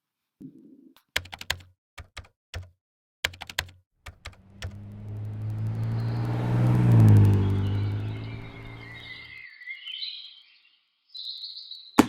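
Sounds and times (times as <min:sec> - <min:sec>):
typing on computer keyboard: 0:01.1 - 0:04.4
vehicle engine approaching: 0:04.2 - 0:09.3.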